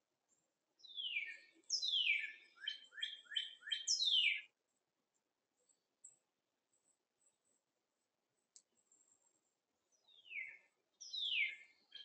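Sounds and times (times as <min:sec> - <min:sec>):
songbird singing falling notes: 0:00.8 - 0:04.5, 0:10.0 - 0:12.0.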